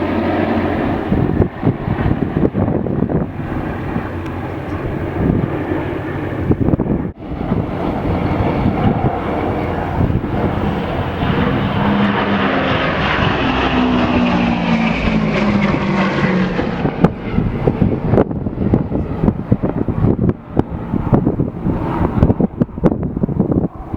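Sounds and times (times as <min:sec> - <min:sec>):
propeller plane flyby: 0:00.0 - 0:23.9
wind buffeting microphone: 0:00.0 - 0:23.9.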